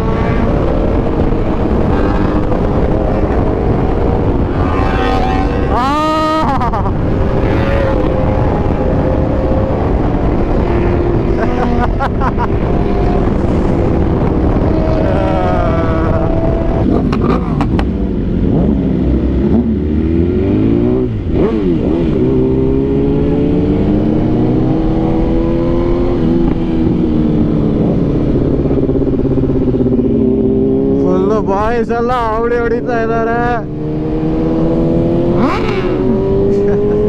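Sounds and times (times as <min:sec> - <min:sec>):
motorcycle engines revving: 0:00.0 - 0:37.0
wind on microphone: 0:00.0 - 0:37.0.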